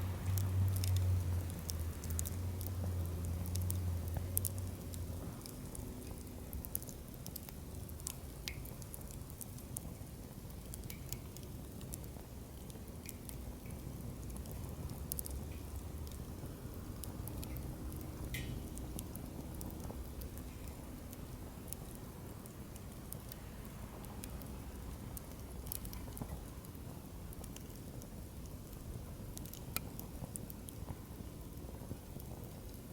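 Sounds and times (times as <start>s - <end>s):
campfire flame rumble: 0.0s - 32.9s
fire pops and crackles: 0.0s - 32.9s.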